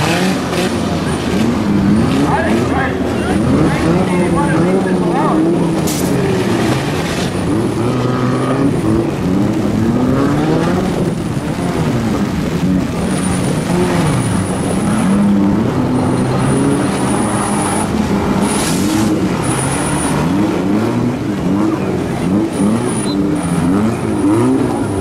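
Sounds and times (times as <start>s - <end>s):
car engines revving: 0.0s - 25.0s
car crashes: 5.7s - 7.5s, 18.3s - 19.6s.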